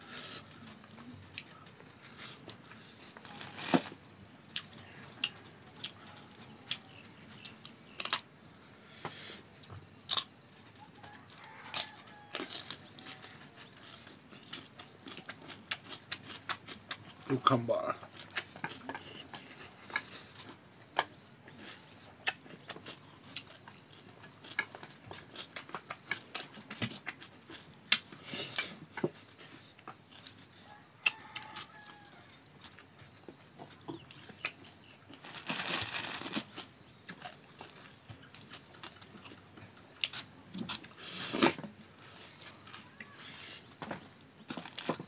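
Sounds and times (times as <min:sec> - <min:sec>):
crunching cucumber bites: 0:06.7 - 0:08.3, 0:34.0 - 0:41.6, 0:43.8 - 0:45.0.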